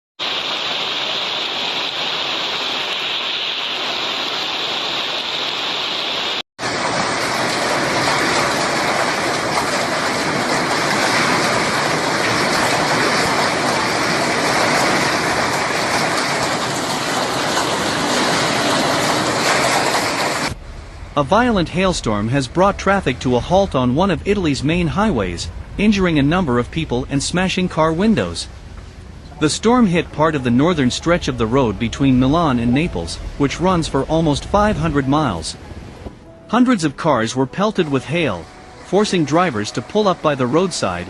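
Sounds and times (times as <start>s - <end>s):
heavy hail pelting: 6.6s - 20.6s.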